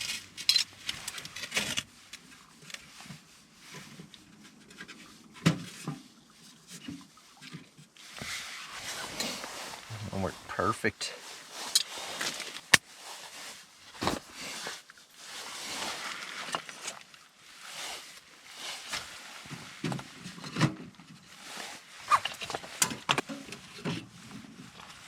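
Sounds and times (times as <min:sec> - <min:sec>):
rustling: 0:08.0 - 0:20.0.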